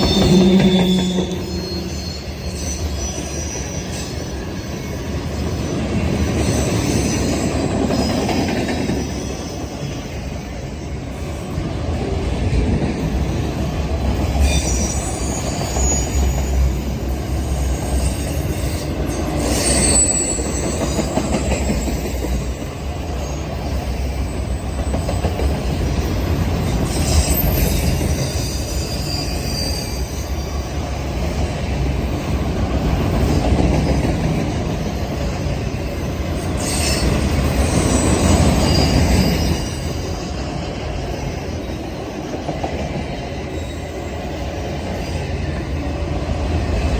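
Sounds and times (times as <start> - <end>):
high wheel squeals: 0.0 - 5.1, 14.3 - 22.6, 26.0 - 30.7, 35.8 - 40.3
train wheels rumbling on rail: 0.0 - 46.9.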